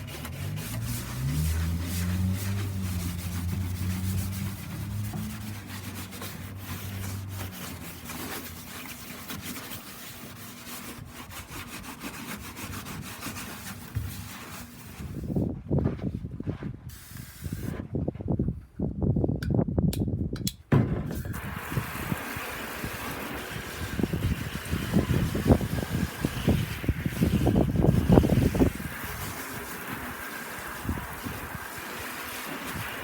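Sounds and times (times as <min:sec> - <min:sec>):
scouring pad scrubbing bathtub: 0:00.0 - 0:15.4, 0:21.4 - 0:33.0.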